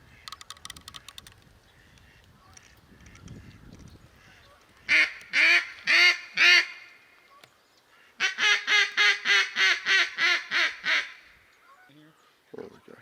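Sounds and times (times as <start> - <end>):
duck call quacks: 8.2 - 12.0.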